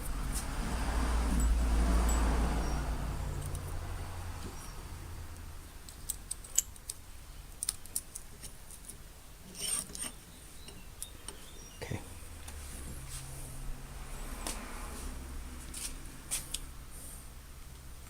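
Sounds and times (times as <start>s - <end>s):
metal parts clicking: 5.9s - 10.1s
metal scrape: 9.5s - 10.2s.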